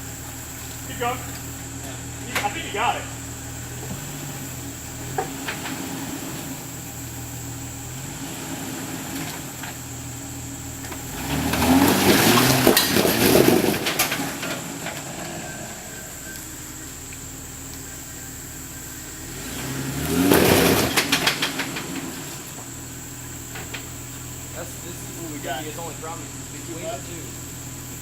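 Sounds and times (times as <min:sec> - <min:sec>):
car engine revving: 0:00.0 - 0:28.0
tyres knocking over rock: 0:10.8 - 0:15.7, 0:20.0 - 0:22.8.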